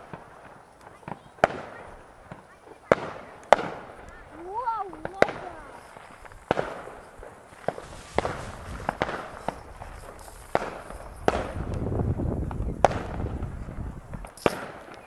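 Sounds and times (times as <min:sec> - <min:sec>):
fireworks bangs and pops: 0:00.0 - 0:15.0
low rumble: 0:07.8 - 0:14.2.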